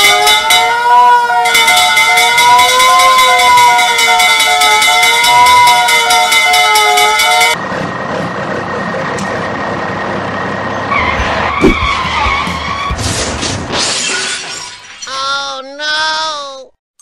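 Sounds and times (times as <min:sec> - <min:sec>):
wavering siren: 0:00.0 - 0:07.6
car engine and tyre skid: 0:10.8 - 0:13.7
sharp knock: 0:11.2 - 0:13.2.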